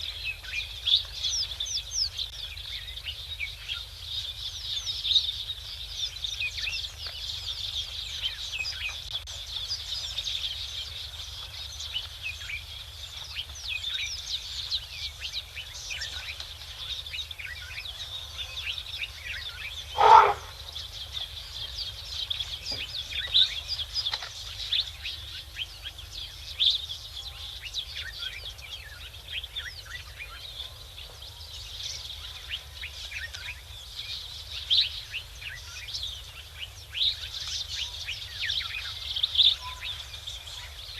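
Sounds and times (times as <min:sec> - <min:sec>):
small birds chirping chorus: 0:00.0 - 0:40.9
loud brief cry: 0:20.0 - 0:20.5.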